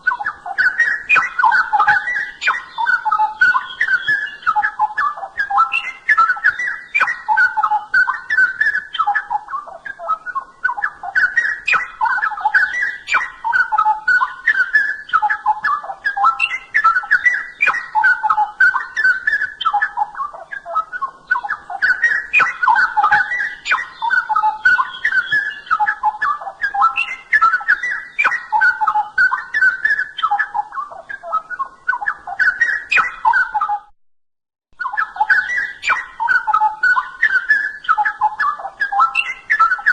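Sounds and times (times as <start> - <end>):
bird singing warbling phrases: 0.0 - 33.9, 34.8 - 39.9.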